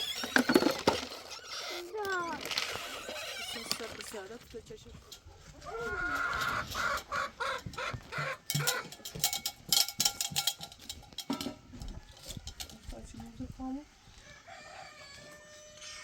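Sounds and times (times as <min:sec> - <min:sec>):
chickens clucking: 0:04.9 - 0:09.4.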